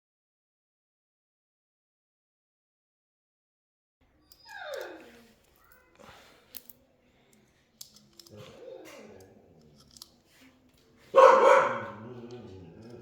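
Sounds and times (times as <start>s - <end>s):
dog barking: 11.1s - 12.3s.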